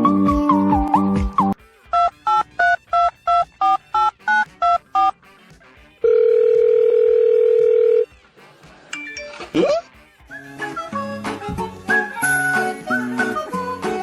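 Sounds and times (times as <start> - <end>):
telephone keypad beeps: 2.0 - 5.1, 6.1 - 8.0
telephone line ringing tone: 2.0 - 5.1, 6.0 - 8.1.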